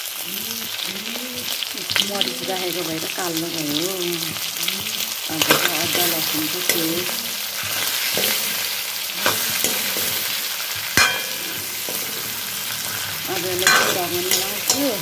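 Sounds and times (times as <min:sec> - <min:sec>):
chicken sizzling in a pan: 0:00.0 - 0:15.0
metal spoon scraping a pan: 0:05.3 - 0:15.0
sharp metallic clank: 0:11.0 - 0:12.2.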